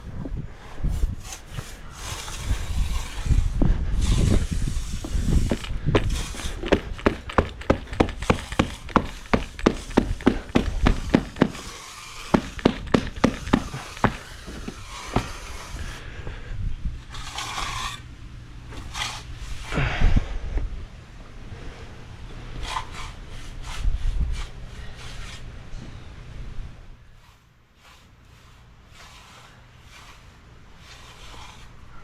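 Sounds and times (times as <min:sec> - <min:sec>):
mats scraping and shuffling: 0:00.0 - 0:16.1, 0:27.1 - 0:32.0
tamper knocking on rubber mats: 0:06.0 - 0:11.6, 0:12.4 - 0:15.4.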